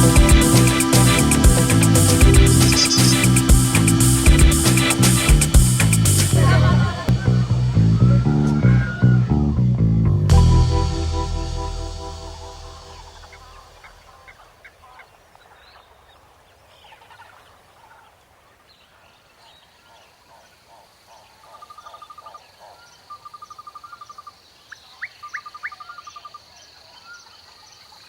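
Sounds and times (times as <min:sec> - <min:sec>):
rapid pulsed trills: 0:00.0 - 0:14.3.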